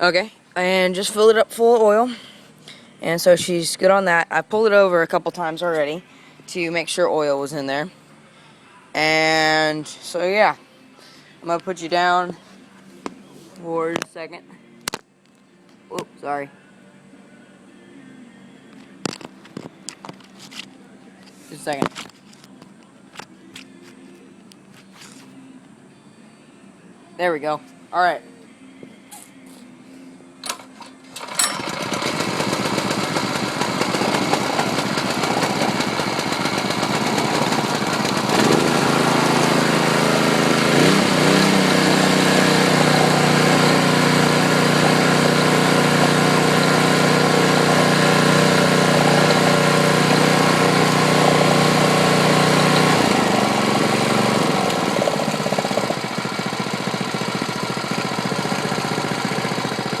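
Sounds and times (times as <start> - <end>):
small engine starting and running: 30.4 - 60.0.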